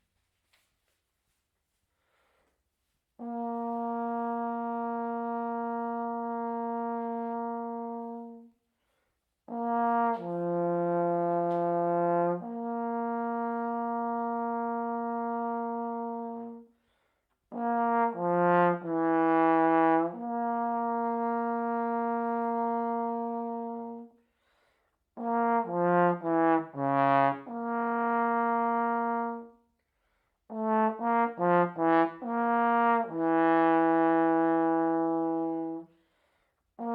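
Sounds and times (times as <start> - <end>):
solo trombone melody: 3.2 - 8.6, 9.4 - 16.8, 17.5 - 24.2, 25.2 - 29.7, 30.5 - 35.9.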